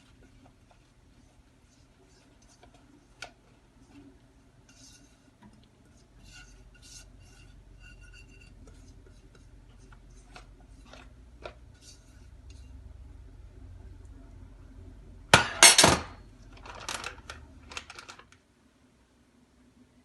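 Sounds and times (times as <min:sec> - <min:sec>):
soft scraping: 0:00.0 - 0:12.9.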